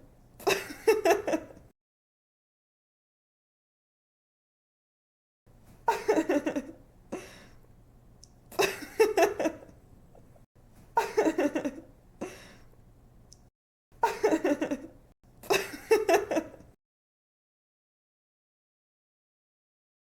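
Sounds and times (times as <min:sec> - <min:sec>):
woman giggling: 0:00.4 - 0:01.6, 0:05.9 - 0:06.8, 0:08.5 - 0:09.7, 0:11.0 - 0:11.9, 0:14.0 - 0:16.7.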